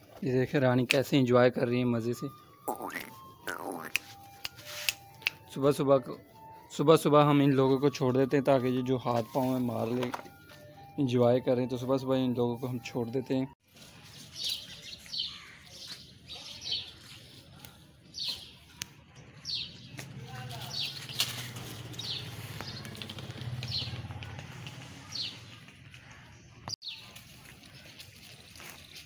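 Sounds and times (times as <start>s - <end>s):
small birds chirping: 2.6s - 4.9s, 13.8s - 29.0s.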